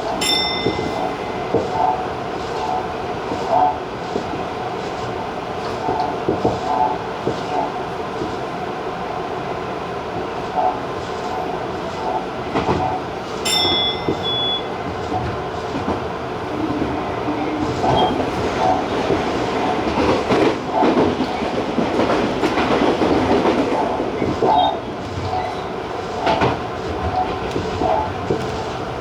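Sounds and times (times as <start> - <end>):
train wheels rumbling on rail: 0.0 - 29.0
clacks and knocks: 0.4 - 8.4, 11.9 - 16.1, 17.6 - 28.9.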